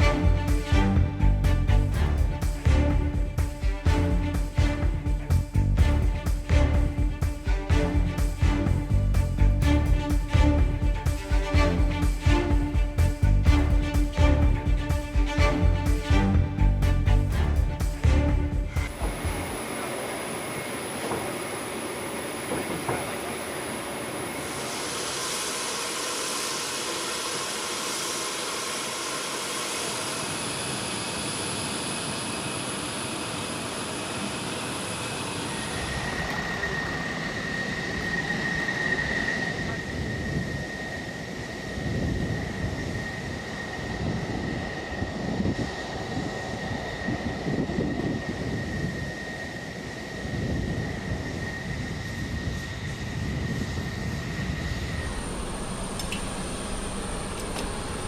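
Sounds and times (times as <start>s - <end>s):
aircraft engines running: 0.0s - 58.0s
high engine whine: 0.0s - 58.0s
steady whistle: 34.5s - 58.0s.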